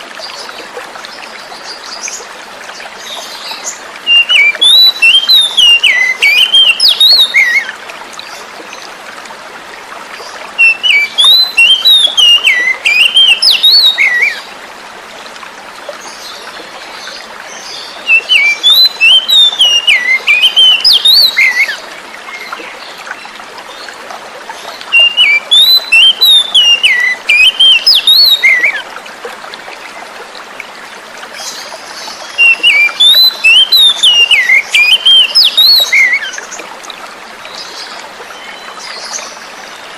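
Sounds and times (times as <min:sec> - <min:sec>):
flowing water rushing: 0:00.0 - 0:39.9
bird singing whistled phrases: 0:04.1 - 0:07.7, 0:10.6 - 0:14.4, 0:18.1 - 0:21.8, 0:24.9 - 0:28.8, 0:32.4 - 0:36.4.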